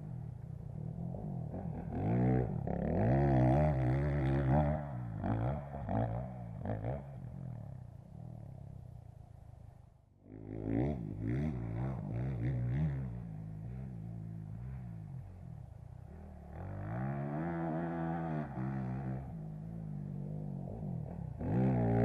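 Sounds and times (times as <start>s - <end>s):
motocross bike engine revving: 1.2s - 7.2s, 16.1s - 22.0s.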